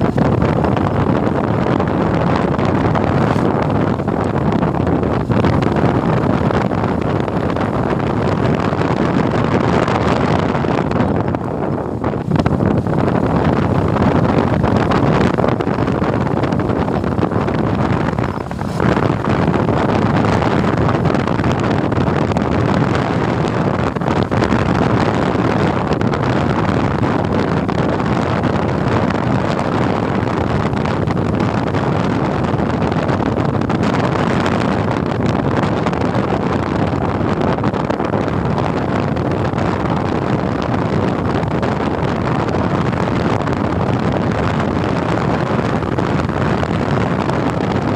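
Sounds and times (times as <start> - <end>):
motorcycle engine: 0.0 - 25.9
road noise: 0.0 - 47.9
wind rush over microphone: 0.0 - 47.9.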